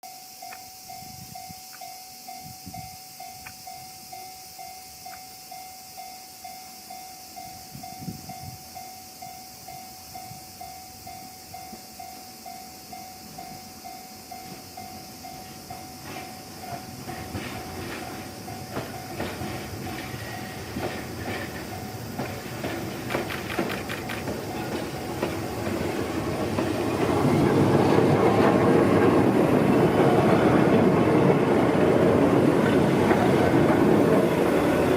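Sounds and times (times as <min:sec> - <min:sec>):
train wheels clacking on rail joints: 0:14.4 - 0:34.9.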